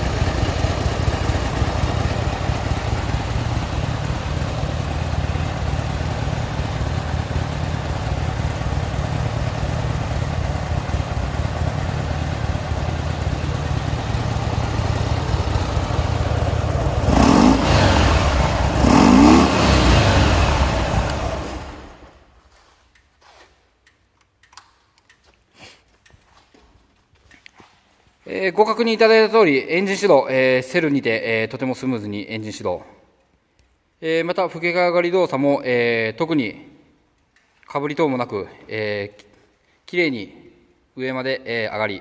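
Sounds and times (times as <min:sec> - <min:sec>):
motorcycle throttle blips: 0:00.0 - 0:22.2
motorcycle engine idling: 0:00.0 - 0:22.3.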